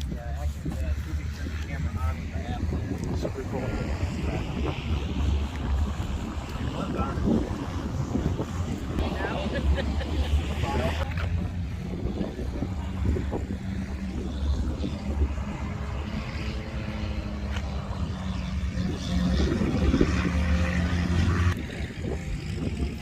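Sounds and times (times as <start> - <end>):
low mechanical drone: 0.0 - 23.0
wind noise on microphone: 0.0 - 23.0.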